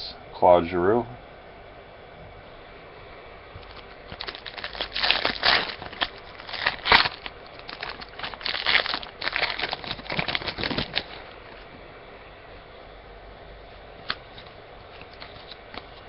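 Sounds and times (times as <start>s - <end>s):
wrapper crinkling and rustling: 3.6s - 11.7s.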